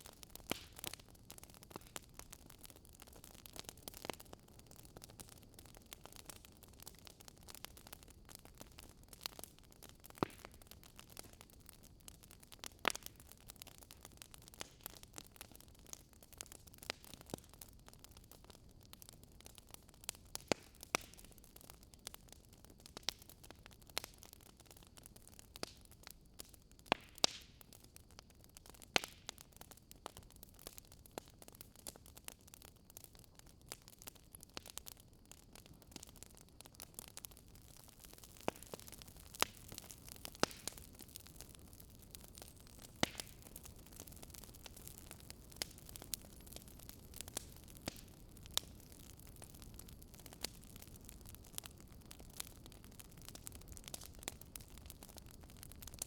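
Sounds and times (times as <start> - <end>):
wood fire crackling: 0.0 - 56.0
sharp pops and snaps: 38.2 - 40.8, 42.4 - 43.6.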